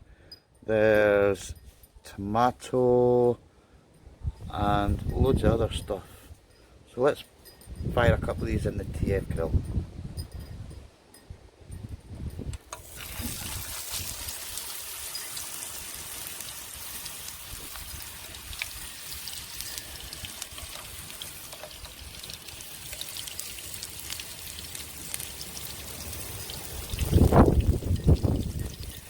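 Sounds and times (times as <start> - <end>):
campfire crackling: 12.6 - 29.0
meat sizzling on a grill: 12.7 - 29.0.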